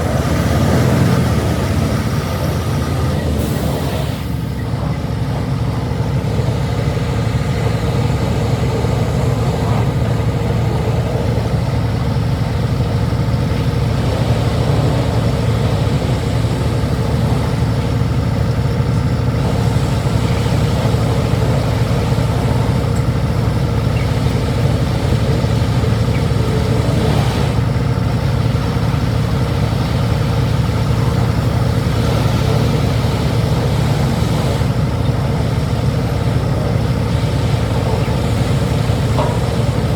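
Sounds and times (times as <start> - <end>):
diesel truck engine humming: 0.0 - 39.9.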